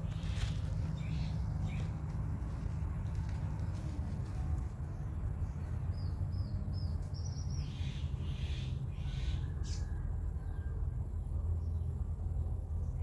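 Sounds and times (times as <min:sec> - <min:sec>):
bird chirping: 0:00.0 - 0:02.1, 0:04.9 - 0:10.7.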